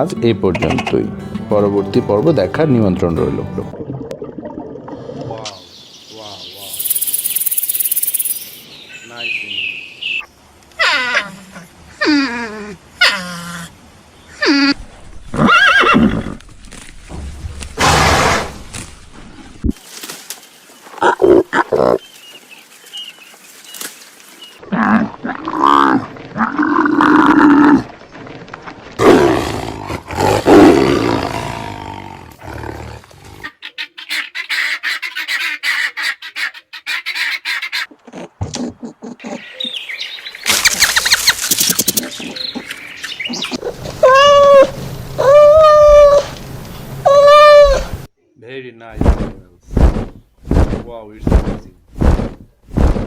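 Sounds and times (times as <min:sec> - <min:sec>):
short rising and falling calls: 0:06.6 - 0:08.6
big cat roars: 0:24.6 - 0:27.9, 0:29.0 - 0:33.4
animal calls: 0:33.4 - 0:46.4, 0:47.0 - 0:48.1.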